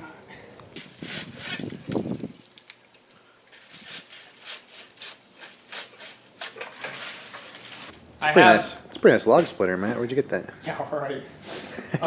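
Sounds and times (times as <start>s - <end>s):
saw cutting through wood: 1.0s - 1.8s, 3.7s - 7.0s.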